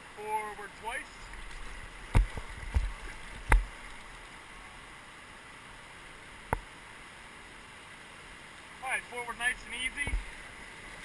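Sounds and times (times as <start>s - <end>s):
river water rushing: 0.0s - 11.0s
paddles knocking and splashing: 1.2s - 4.1s, 9.9s - 10.4s.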